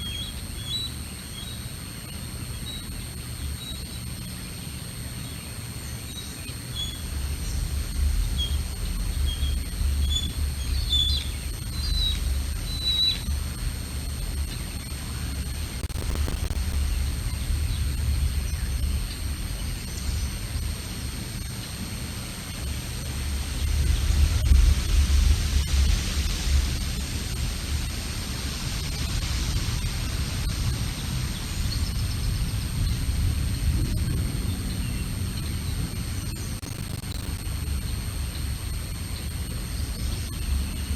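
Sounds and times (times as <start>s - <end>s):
small birds chirping: 0.0s - 13.4s
steady hiss: 0.0s - 40.9s
faint high bird chirps: 9.2s - 13.3s
wind rumble on microphone: 23.1s - 36.5s.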